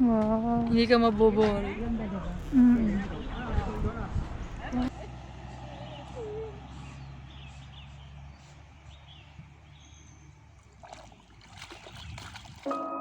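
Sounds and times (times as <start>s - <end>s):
low steady rumble: 0.0s - 7.8s
faint wild bird calls: 5.5s - 11.0s.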